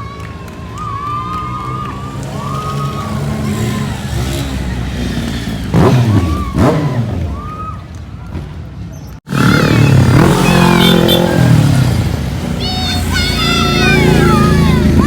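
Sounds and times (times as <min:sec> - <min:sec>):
motorcycle engines running: 0:00.0 - 0:15.0
motorcycle throttle revs: 0:02.8 - 0:07.4, 0:09.3 - 0:15.0.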